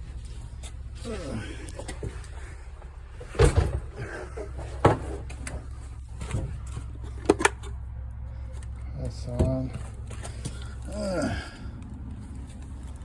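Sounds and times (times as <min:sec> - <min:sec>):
hvac equipment humming: 0:00.0 - 0:13.0
door opening and shutting: 0:03.2 - 0:04.0.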